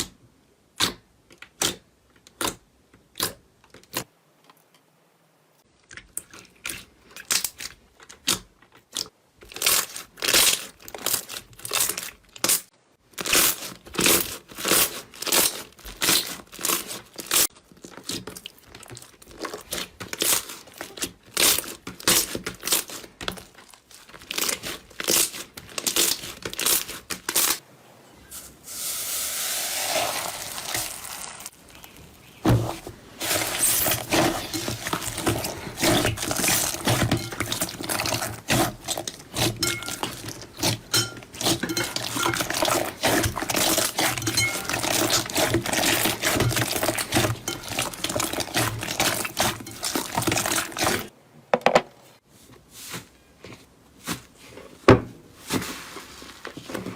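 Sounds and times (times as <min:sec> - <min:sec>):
slime squelching: 0:05.7 - 0:27.6, 0:29.8 - 0:51.1.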